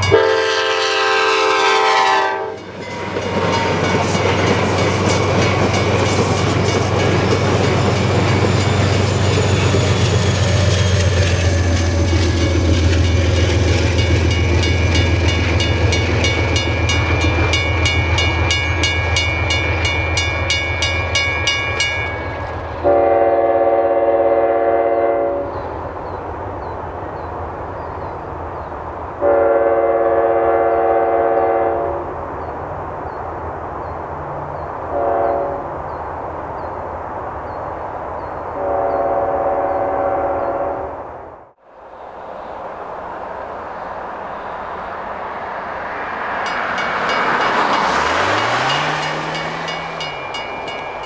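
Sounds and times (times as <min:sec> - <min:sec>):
crossing bell ringing: 0:00.0 - 0:00.9, 0:02.0 - 0:23.0, 0:46.1 - 0:51.0
loud train horn blasts: 0:00.0 - 0:04.6, 0:22.8 - 0:25.6, 0:29.2 - 0:32.1, 0:34.9 - 0:35.8, 0:38.6 - 0:41.1
train rumbling past: 0:00.0 - 0:51.0.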